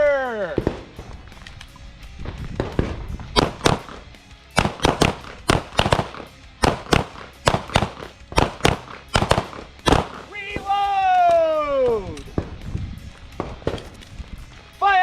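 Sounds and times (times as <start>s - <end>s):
pistol shots: 0.5s - 1.2s, 2.6s - 10.7s.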